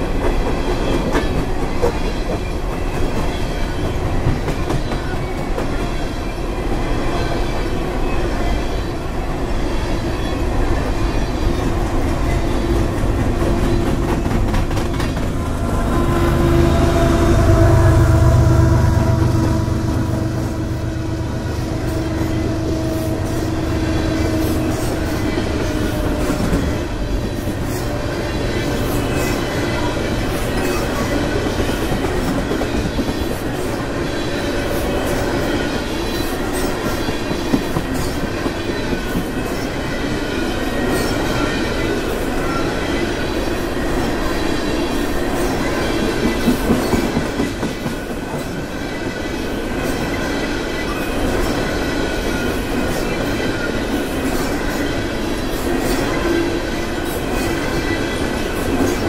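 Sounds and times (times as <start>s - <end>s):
diesel locomotive rumbling past: 0.0s - 59.0s
wheels clacking over rail joints: 11.6s - 17.0s.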